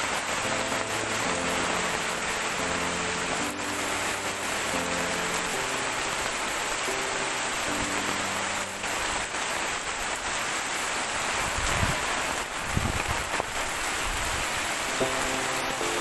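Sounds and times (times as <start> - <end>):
heavy rain pouring: 0.0 - 16.0
wind gusts buffeting microphone: 11.3 - 14.8.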